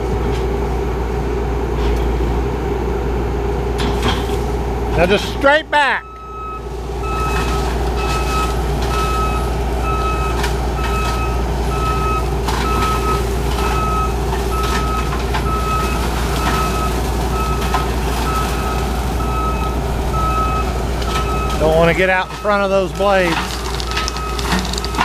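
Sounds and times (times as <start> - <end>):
diesel engine running: 0.0 - 25.0
reversing alarm beeping: 5.9 - 23.2.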